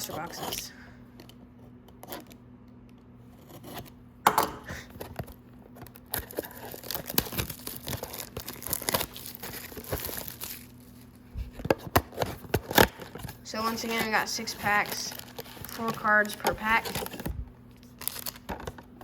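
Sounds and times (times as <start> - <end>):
tearing and crinkling of wrapping: 5.1 - 11.2, 12.0 - 19.0
box wrapping ripping: 6.1 - 10.8, 12.2 - 18.8.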